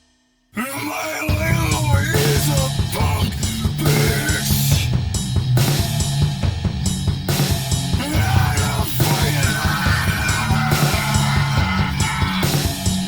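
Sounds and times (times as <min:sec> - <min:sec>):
drum kit hits: 0:01.3 - 0:13.0
low bass line: 0:01.4 - 0:13.0
electric guitar: 0:08.0 - 0:13.0.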